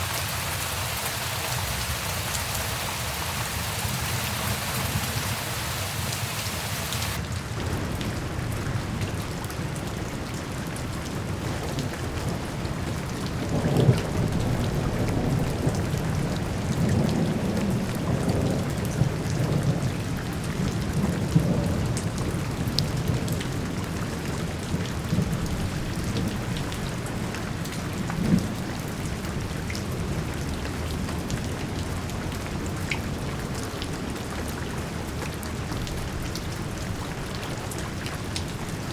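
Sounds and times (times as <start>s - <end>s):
thunder rumbling: 0.0s - 8.2s
steady rain: 0.0s - 38.9s.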